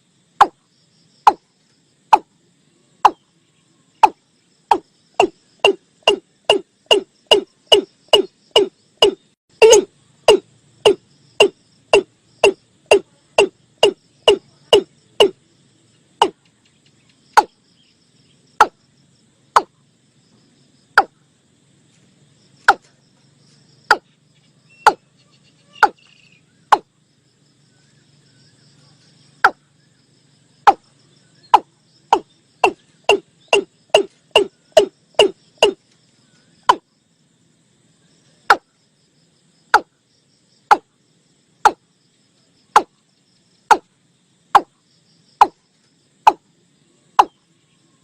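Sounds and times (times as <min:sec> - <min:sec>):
recorded bird calls: 0:00.4 - 0:21.3, 0:22.5 - 0:37.0, 0:45.4 - 0:48.0.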